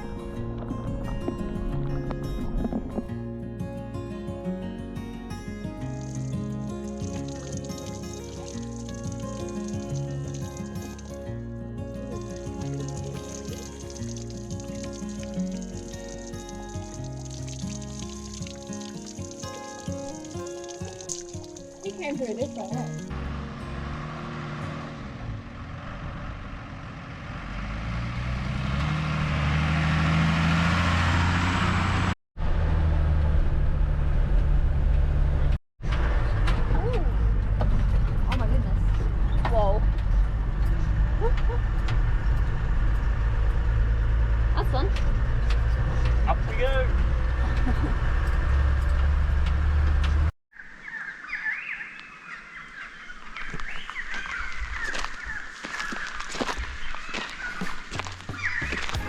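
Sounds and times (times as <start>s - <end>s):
birds chirping and calling: 50.6s - 59.0s.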